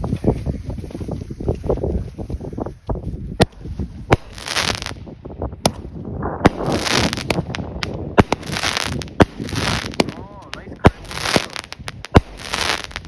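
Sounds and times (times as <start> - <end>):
firework bangs: 3.4 - 5.0, 5.6 - 13.0
firework crackling hiss: 3.5 - 5.0, 6.5 - 13.0.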